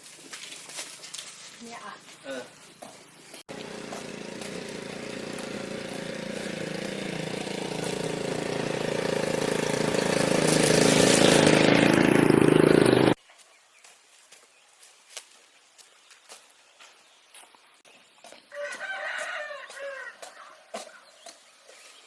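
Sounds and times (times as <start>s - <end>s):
motor engine running: 3.5s - 13.2s.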